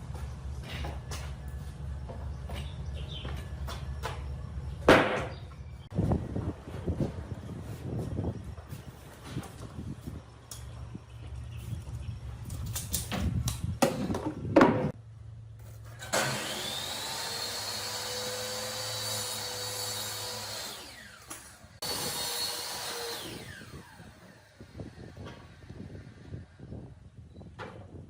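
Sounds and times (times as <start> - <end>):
electric power tool running: 16.0 - 26.5.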